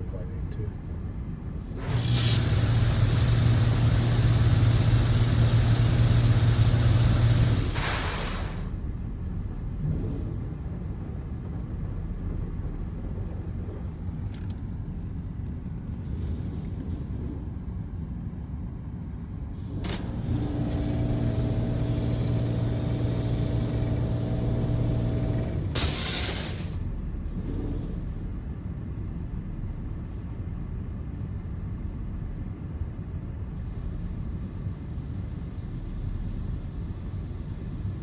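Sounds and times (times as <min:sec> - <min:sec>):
car wash machinery rumble: 0:00.0 - 0:17.9, 0:19.5 - 0:31.1, 0:31.7 - 0:38.0
loud hiss of spray: 0:01.7 - 0:08.7, 0:19.8 - 0:26.8
machine humming: 0:01.8 - 0:08.7, 0:19.8 - 0:26.8.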